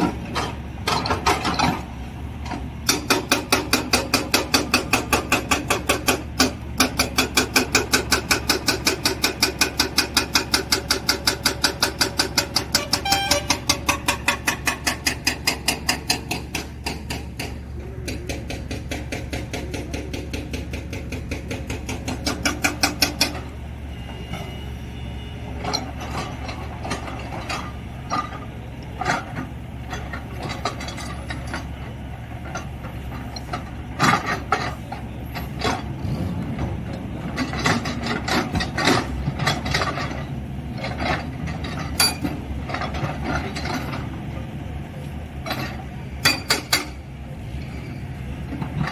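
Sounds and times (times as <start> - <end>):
diesel engine hum: 0.0 - 48.9.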